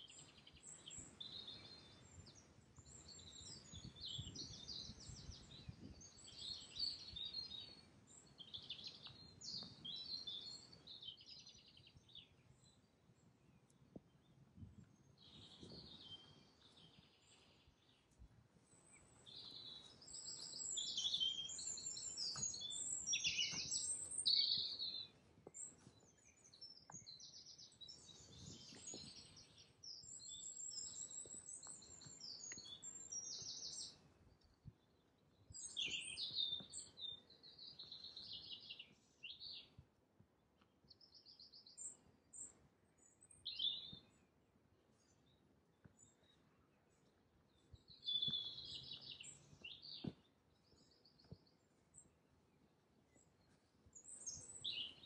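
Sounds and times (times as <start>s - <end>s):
songbirds trilling: 15.0s - 34.0s.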